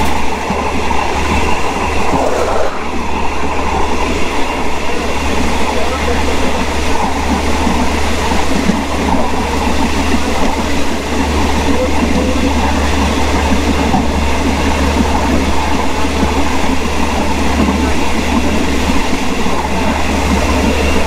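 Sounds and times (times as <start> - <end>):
train wheel and track noise: 0.0 - 21.0
low hum: 1.1 - 5.1.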